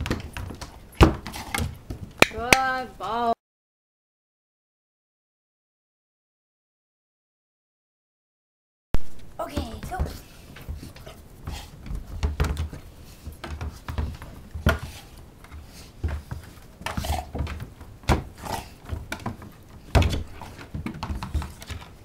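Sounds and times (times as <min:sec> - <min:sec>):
ball bumping against stairs: 0:00.0 - 0:02.2, 0:09.5 - 0:22.0.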